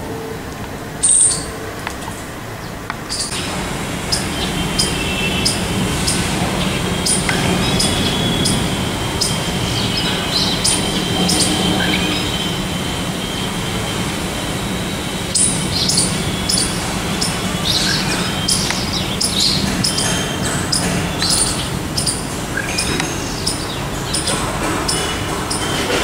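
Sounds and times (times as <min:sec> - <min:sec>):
faint high whine: 0:00.0 - 0:20.3
small birds chirping: 0:01.0 - 0:01.6, 0:02.6 - 0:26.0
steady low rumble: 0:01.8 - 0:25.4.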